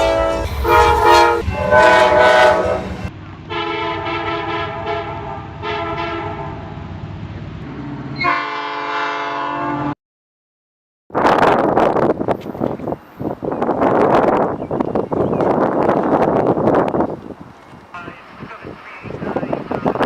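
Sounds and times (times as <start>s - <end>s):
locomotive air horn blasts: 0.0s - 6.7s, 8.2s - 10.0s.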